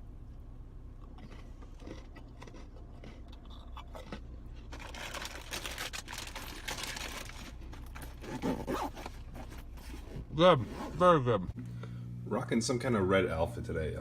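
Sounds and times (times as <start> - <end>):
plastic wrapper crinkling: 4.7 - 7.6.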